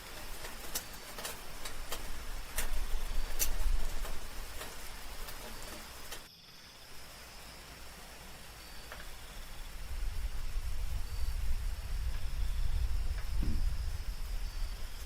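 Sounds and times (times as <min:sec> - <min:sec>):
soft rain dripping: 0:00.0 - 0:15.0
low rumble: 0:09.6 - 0:15.0.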